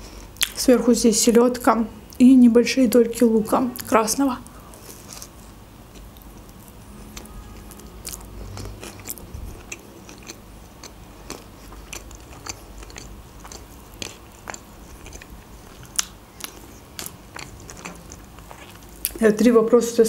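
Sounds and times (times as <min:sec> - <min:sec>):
wet mouth clicks and crunches: 0:00.4 - 0:00.6, 0:08.0 - 0:19.2
person biting and chewing food: 0:04.6 - 0:19.2.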